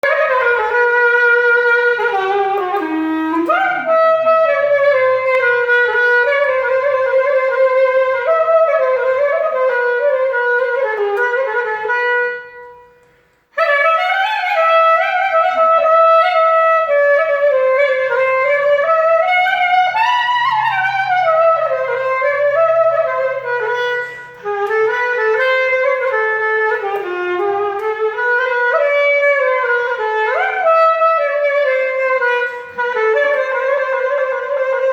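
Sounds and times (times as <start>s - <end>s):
single-reed wind instrument melody: 0.0s - 34.9s.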